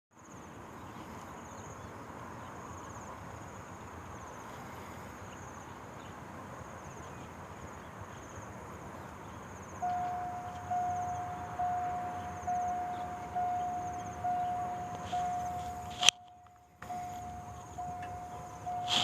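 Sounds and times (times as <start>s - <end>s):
insects chirping in trills: 0.2s - 19.0s
level crossing warning tone: 9.7s - 19.0s
low background hum: 9.8s - 19.0s.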